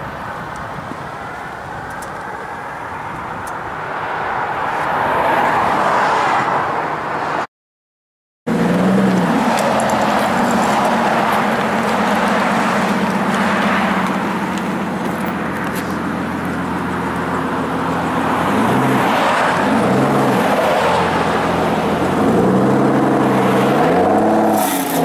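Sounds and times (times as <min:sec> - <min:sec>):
car engine idling and revving: 0:08.5 - 0:25.0.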